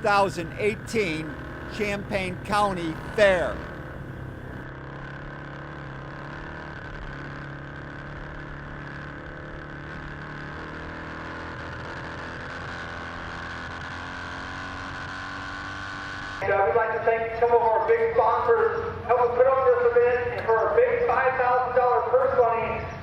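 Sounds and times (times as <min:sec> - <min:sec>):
motorcycle engines idling: 0:00.0 - 0:23.0.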